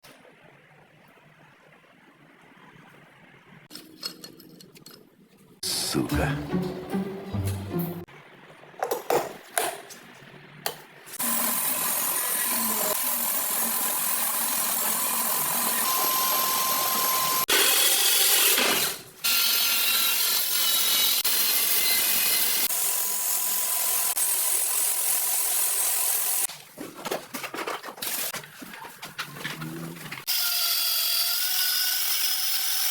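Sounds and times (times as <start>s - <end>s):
power tool running: 11.2s - 26.5s
handling clatter and knocks: 26.5s - 30.2s.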